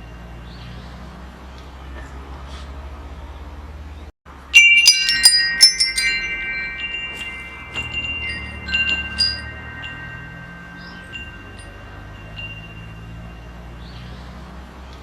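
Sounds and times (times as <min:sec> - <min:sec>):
metal wind chimes ringing: 0:00.0 - 0:00.9, 0:04.3 - 0:14.9.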